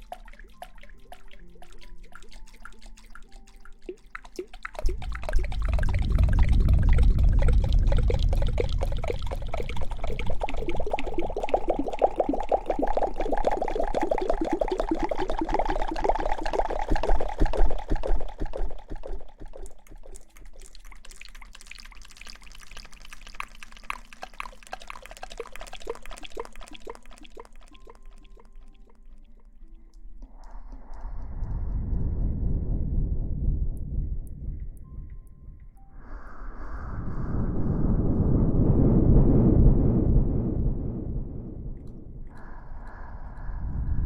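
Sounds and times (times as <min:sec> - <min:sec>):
water pouring and splashing: 0:00.0 - 0:31.2
wet crackling of hair: 0:16.4 - 0:30.6.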